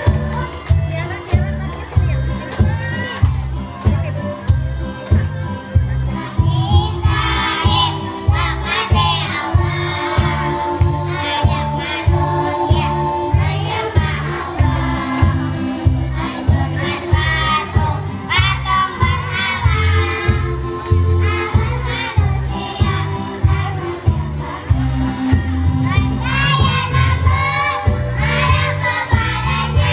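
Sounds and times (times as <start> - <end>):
music with steady bass beat: 0.0 - 29.9
children's choir singing: 6.1 - 29.9.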